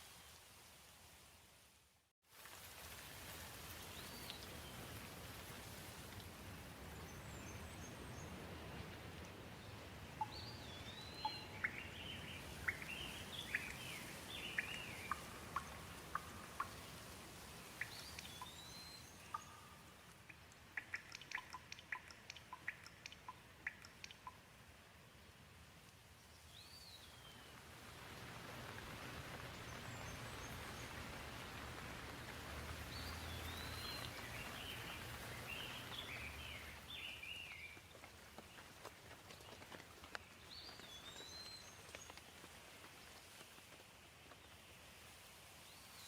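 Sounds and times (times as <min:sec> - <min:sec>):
gentle rain hissing: 0:00.0 - 0:46.0
birds chirping: 0:10.2 - 0:17.0, 0:32.7 - 0:37.8
sharp ticks: 0:19.3 - 0:24.4.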